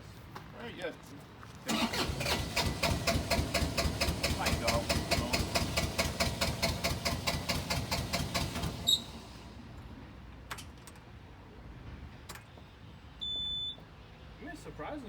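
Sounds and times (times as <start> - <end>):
diesel engine cranking: 1.7 - 9.9.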